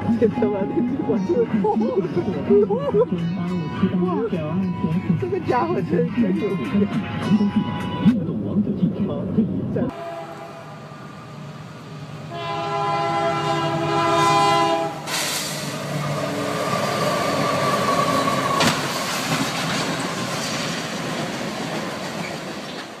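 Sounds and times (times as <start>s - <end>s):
train horn blast: 9.9s - 11.1s, 12.2s - 15.7s
train rushing and clattering past: 15.0s - 23.0s.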